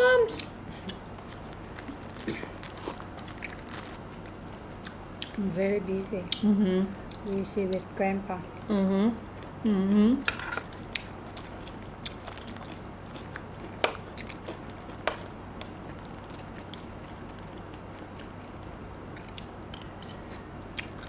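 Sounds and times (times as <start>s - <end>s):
low steady hum: 0.0s - 21.0s
chewing and crunching: 0.3s - 5.6s, 10.3s - 21.0s.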